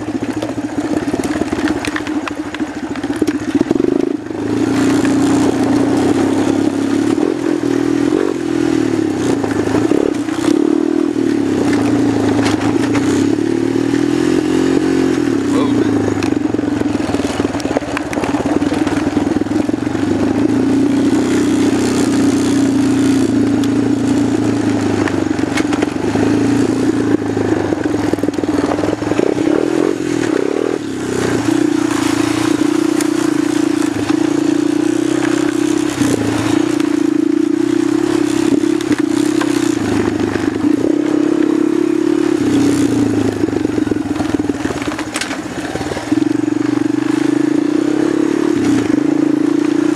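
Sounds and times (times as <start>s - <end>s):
atv engine running: 0.0s - 49.9s.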